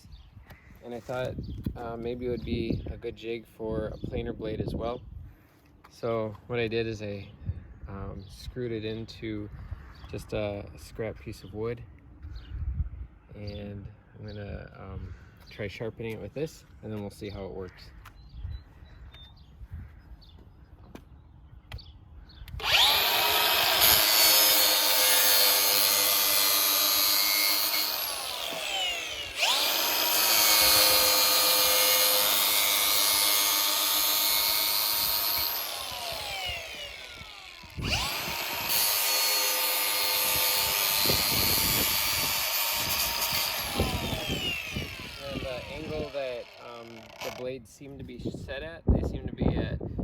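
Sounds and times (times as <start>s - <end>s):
angle grinder sharpening steel: 22.6s - 47.4s.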